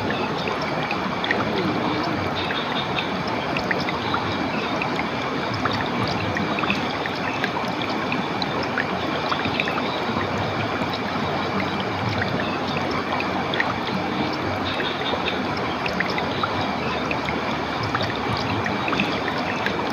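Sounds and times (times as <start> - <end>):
small water plinks: 0.0 - 19.9
stream water flowing: 0.0 - 19.9.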